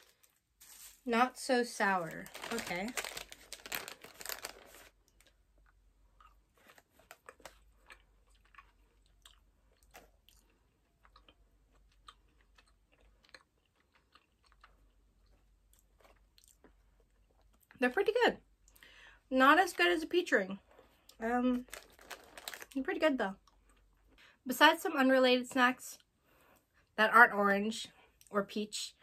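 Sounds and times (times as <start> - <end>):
candy bag rustling: 0.0 - 5.4, 6.5 - 8.0, 21.5 - 23.0
chewing gummy candy: 2.3 - 17.8, 20.7 - 24.2.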